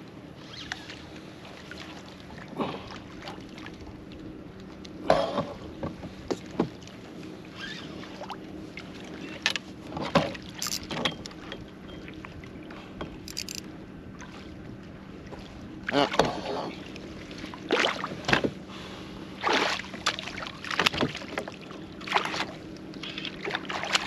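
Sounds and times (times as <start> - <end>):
knocks and clunks on kayak: 5.0 - 6.8, 9.4 - 12.1, 16.0 - 16.5, 17.8 - 18.6, 20.0 - 21.6
short water splashes: 15.2 - 24.0.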